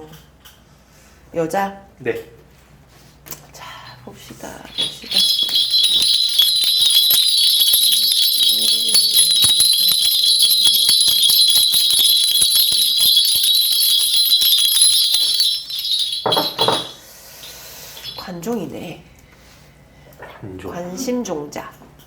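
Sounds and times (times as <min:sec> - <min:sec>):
bell rattle jingling: 0:04.7 - 0:18.4.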